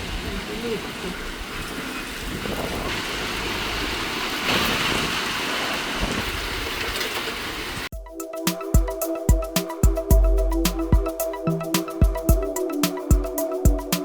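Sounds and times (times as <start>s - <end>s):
rain hissing: 0.0s - 7.9s
mallet music jingle: 7.9s - 14.0s.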